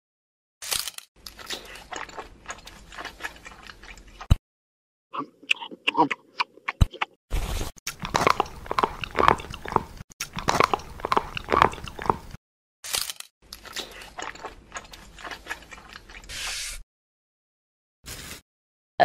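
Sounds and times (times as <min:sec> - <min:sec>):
crunchy bites and chewing: 0:00.6 - 0:04.4, 0:06.5 - 0:16.3.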